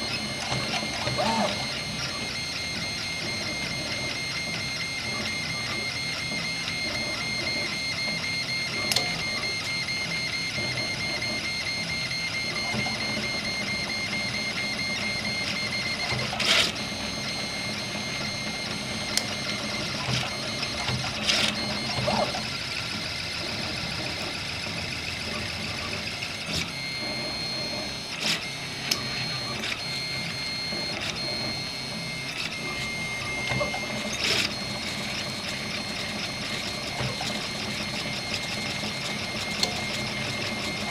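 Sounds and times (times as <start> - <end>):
stepper motors whining: 0.0 - 40.9.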